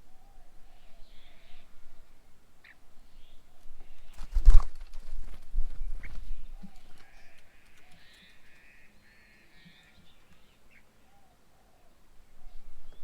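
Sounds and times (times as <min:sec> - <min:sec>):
faint high bird calls: 0:00.0 - 0:04.6, 0:05.8 - 0:13.0
harsh rattling bird calls: 0:05.9 - 0:13.0.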